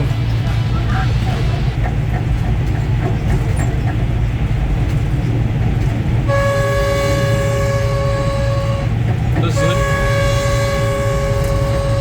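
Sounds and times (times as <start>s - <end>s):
train rumbling: 0.0s - 12.0s
train horn blast: 6.3s - 12.0s.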